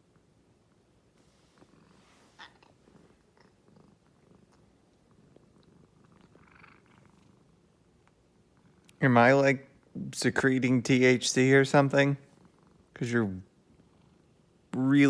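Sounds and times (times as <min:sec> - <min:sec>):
cat purring softly: 0:00.0 - 0:09.0, 0:11.0 - 0:15.0
faint clicks and rustles: 0:00.0 - 0:09.0.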